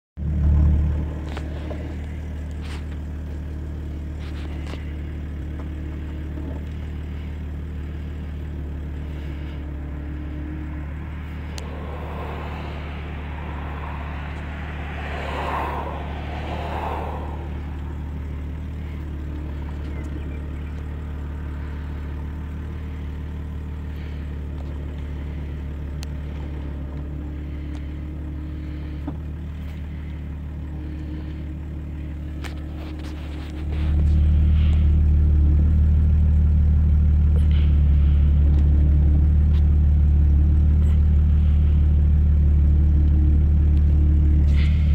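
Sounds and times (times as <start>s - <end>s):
car engine idling: 0.2s - 44.9s
rushing sound: 9.8s - 19.6s.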